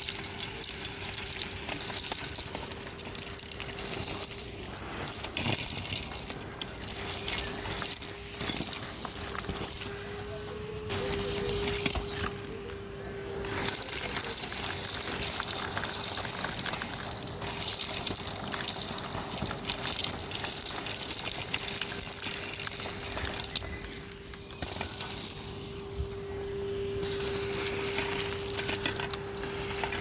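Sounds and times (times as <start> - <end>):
grit rattling through hose: 0.0 - 30.0
vacuum cleaner motor hum: 0.0 - 30.0.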